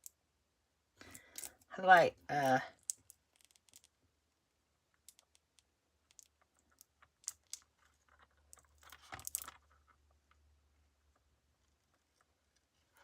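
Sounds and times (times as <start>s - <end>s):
clicks and crinkles of craft pieces: 1.0s - 1.7s, 2.4s - 4.0s, 5.0s - 10.4s.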